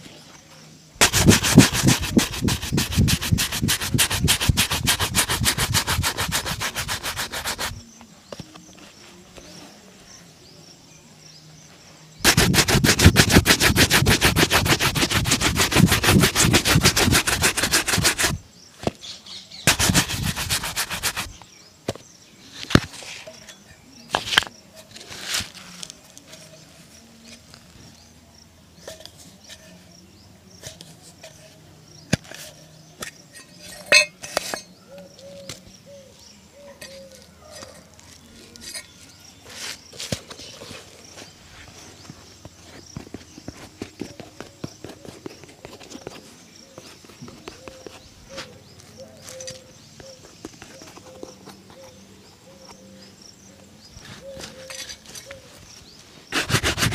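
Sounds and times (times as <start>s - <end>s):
brush buffing a shoe: 1.0s - 7.8s, 12.2s - 18.4s, 19.7s - 21.4s, 56.3s - 56.9s.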